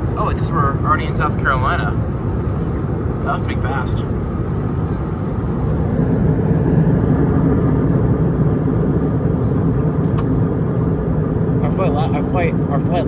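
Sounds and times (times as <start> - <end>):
airliner cabin engine and airflow rush: 0.0 - 13.0.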